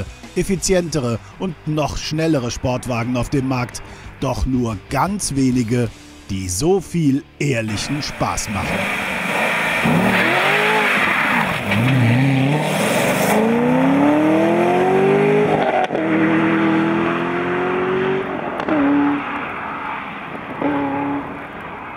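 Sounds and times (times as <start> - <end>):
car engine accelerating: 7.7 - 21.9
tyre hiss on wet road: 8.7 - 11.5.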